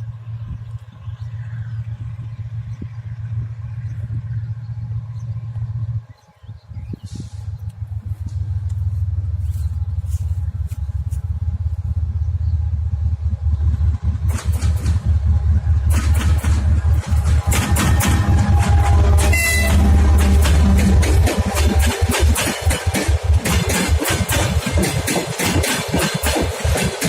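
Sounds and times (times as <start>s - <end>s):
diesel locomotive engine rumbling: 0.0s - 27.0s
rapid clatter of sharp knocks: 14.2s - 15.2s, 15.8s - 27.0s.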